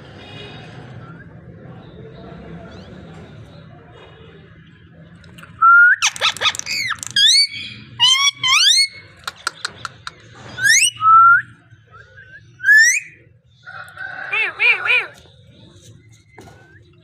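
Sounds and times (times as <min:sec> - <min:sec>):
parrot whistling: 0:06.0 - 0:09.0.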